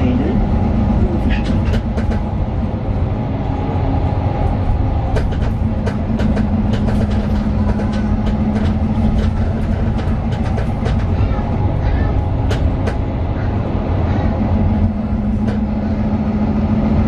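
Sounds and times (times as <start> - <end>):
bus diesel engine drone: 0.0 - 17.0
interior fittings rattling: 1.2 - 2.4, 5.0 - 13.2.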